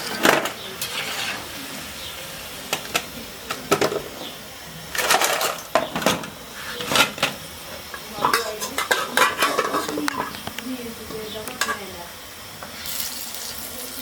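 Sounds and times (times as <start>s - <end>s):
metal utensil scraping a pan: 0.0s - 1.6s, 8.0s - 10.4s.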